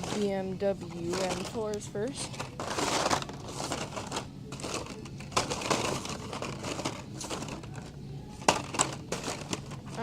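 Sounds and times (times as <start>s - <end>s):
plastic and card crinkling: 0.9s - 10.0s.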